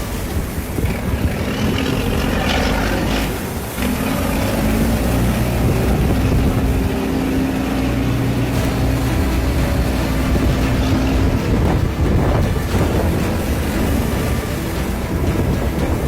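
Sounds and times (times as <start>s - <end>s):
boat engine humming: 0.0s - 16.0s
water washing: 0.0s - 16.0s
wind: 0.0s - 16.0s.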